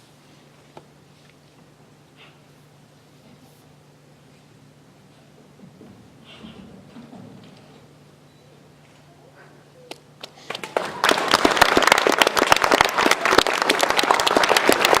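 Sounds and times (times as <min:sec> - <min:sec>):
audience applause: 0:10.3 - 0:15.0.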